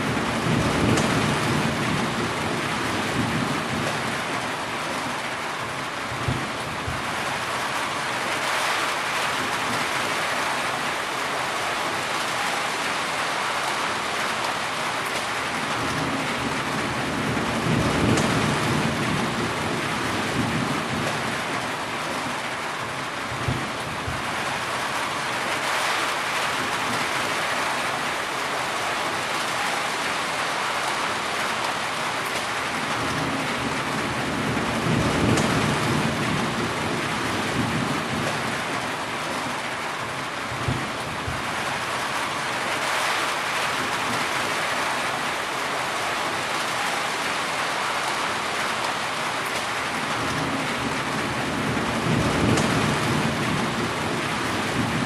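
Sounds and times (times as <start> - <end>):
heavy rain falling: 0.0 - 55.0
rolling thunder: 15.8 - 21.4, 33.0 - 38.7, 50.2 - 55.0.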